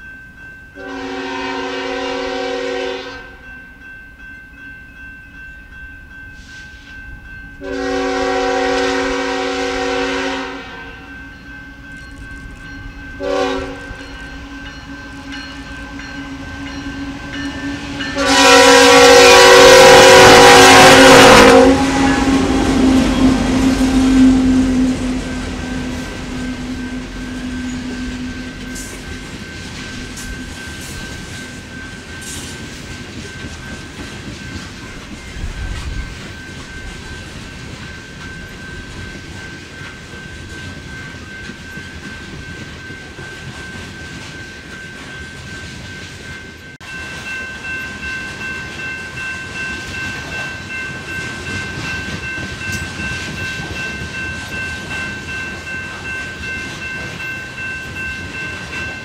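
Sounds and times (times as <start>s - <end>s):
locomotive engine drone: 10.8s - 34.0s.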